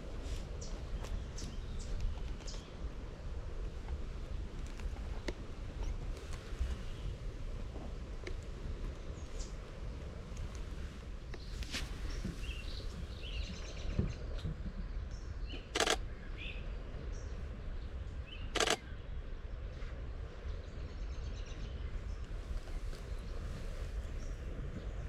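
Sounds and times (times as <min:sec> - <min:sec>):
small birds chirping: 0:11.4 - 0:18.8
camera shutter bursts: 0:15.8 - 0:16.0, 0:18.6 - 0:18.8.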